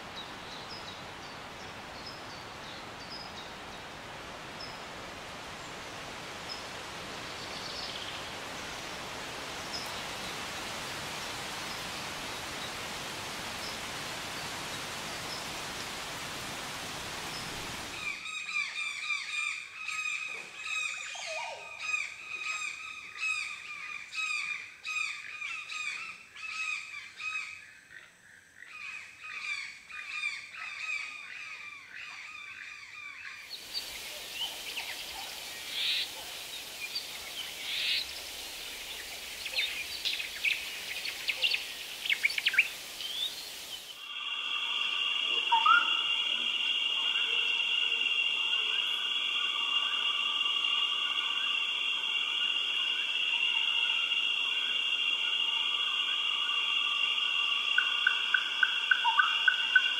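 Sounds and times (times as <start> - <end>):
steady hiss: 0.0 - 18.4, 33.4 - 59.9
bird chirps: 33.5 - 44.2, 45.0 - 59.9.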